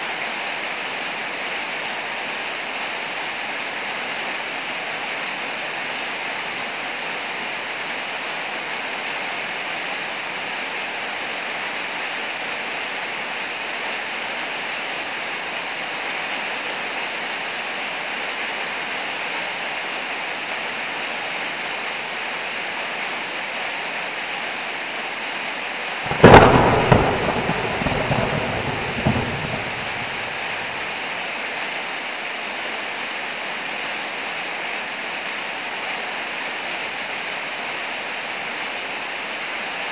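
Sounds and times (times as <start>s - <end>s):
heavy rain: 0.0s - 39.9s
thunderclap rolling into rumble: 26.1s - 31.0s.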